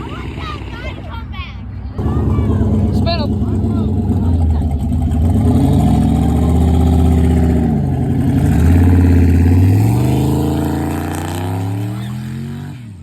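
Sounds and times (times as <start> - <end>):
car engine accelerating: 2.0 - 13.0.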